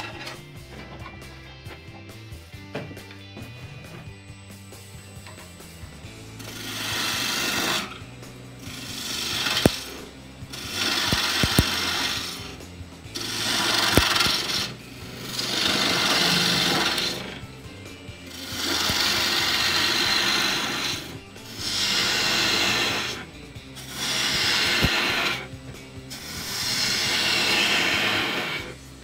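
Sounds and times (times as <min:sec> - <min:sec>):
power tool cutting wood: 0:04.8 - 0:29.0
sharp clicks: 0:08.7 - 0:10.0, 0:10.6 - 0:12.5, 0:13.2 - 0:14.7, 0:18.5 - 0:20.9.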